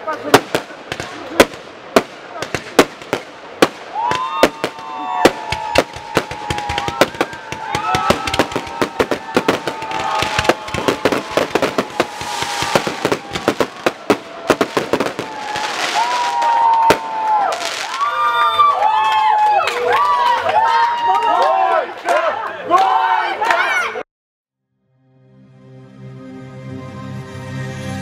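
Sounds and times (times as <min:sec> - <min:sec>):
fireworks bangs: 0:00.0 - 0:18.4
fireworks crackling: 0:00.0 - 0:18.7.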